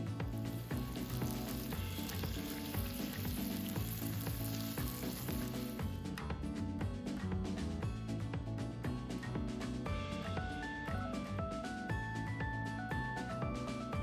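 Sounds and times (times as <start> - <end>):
background music: 0.0 - 14.0
food sizzling in a pan: 0.2 - 5.8.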